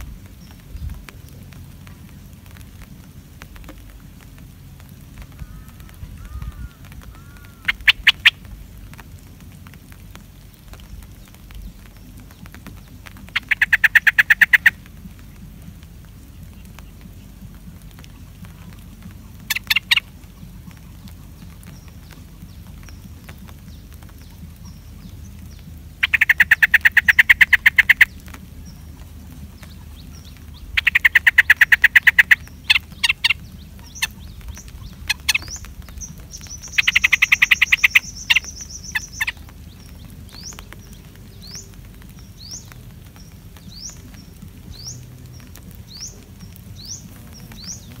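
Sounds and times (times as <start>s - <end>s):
birds chattering trills: 0.0s - 48.0s.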